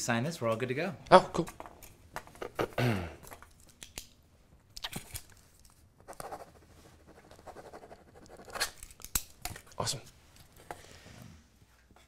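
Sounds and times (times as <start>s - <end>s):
pen scratching on paper: 6.1s - 8.7s.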